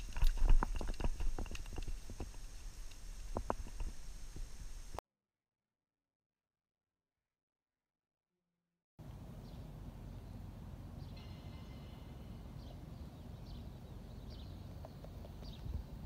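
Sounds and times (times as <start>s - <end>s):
bird chirping: 9.4s - 16.0s.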